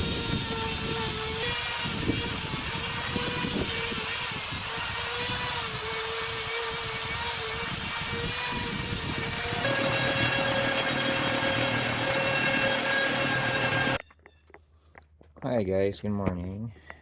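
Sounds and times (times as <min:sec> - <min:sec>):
chainsaw running at high revs: 0:00.0 - 0:14.0.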